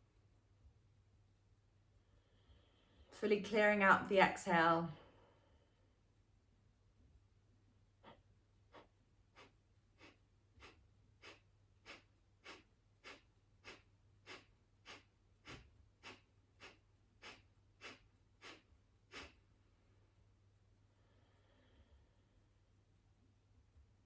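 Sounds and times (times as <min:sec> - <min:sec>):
sharp nasal exhales: 0:08.0 - 0:19.4.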